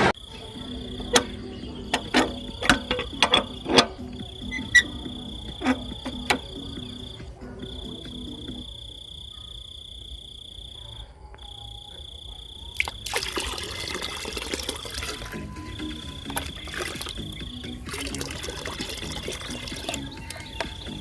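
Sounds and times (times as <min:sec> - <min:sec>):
water pouring: 0:12.8 - 0:21.0.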